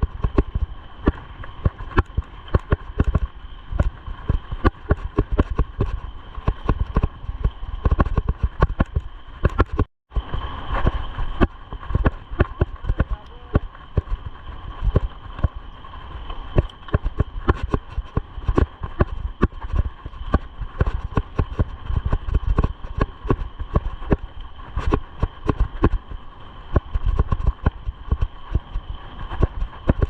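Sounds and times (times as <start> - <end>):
bike rattling over bumpy ground: 0.0 - 30.0
steady high hum: 0.0 - 30.0.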